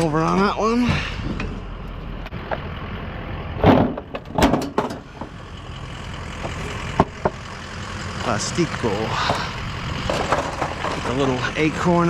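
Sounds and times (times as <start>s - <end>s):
engine idling rumble: 0.0s - 12.0s
junk knocking and clattering: 3.6s - 5.6s, 6.2s - 11.9s.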